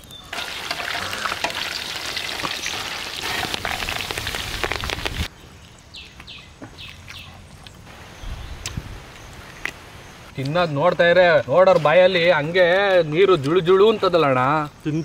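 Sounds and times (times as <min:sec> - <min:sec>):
deep-frying sizzle with crackles: 0:00.0 - 0:05.3.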